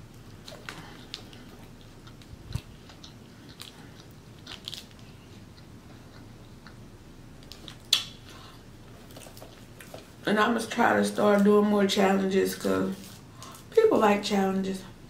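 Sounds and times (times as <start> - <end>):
close-miked chewing: 0.0 - 10.2
wet mouth smacks and clicks: 7.4 - 8.2.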